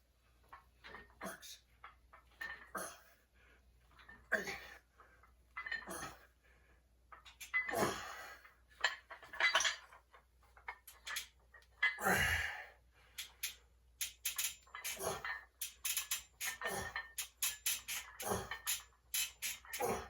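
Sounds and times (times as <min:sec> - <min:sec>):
metal weights clinking: 0:07.2 - 0:12.1, 0:13.2 - 0:20.0.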